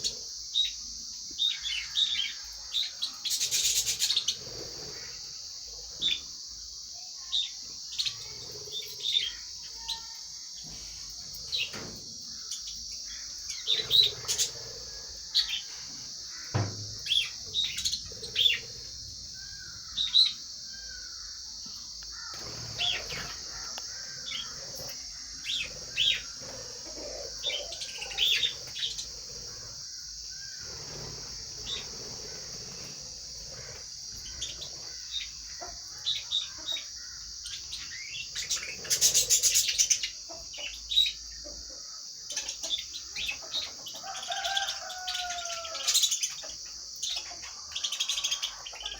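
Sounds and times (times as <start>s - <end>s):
high-pitched hiss: 0.0s - 41.4s
lovebirds chirping: 12.4s - 41.6s.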